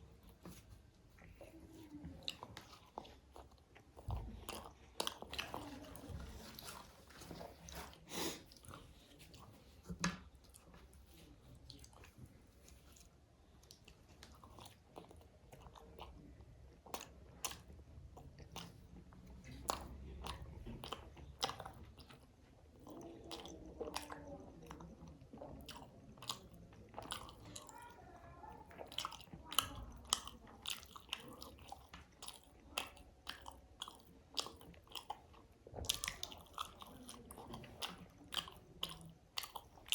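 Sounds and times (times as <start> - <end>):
wet chewing: 0.0 - 39.9.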